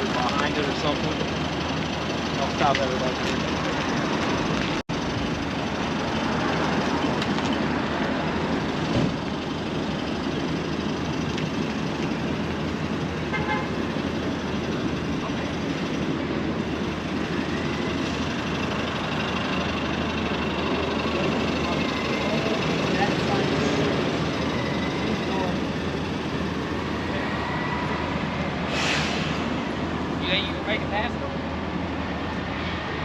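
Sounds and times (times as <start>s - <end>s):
street traffic: 0.0s - 33.0s
vehicle horn toot: 13.3s - 13.8s.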